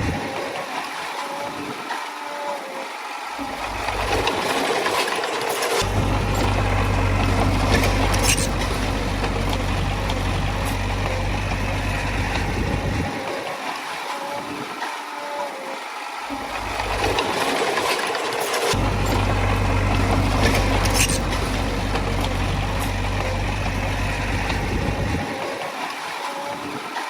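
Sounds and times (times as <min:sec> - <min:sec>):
earthmoving machinery diesel engine: 0:03.4 - 0:13.4, 0:16.3 - 0:25.8
metallic clanks: 0:03.7 - 0:13.0, 0:16.5 - 0:25.2.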